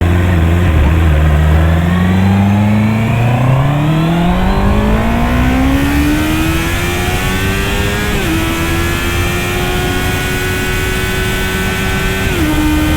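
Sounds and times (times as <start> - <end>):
motorcycle engine accelerating: 0.0 - 12.9
wind noise: 0.6 - 10.4.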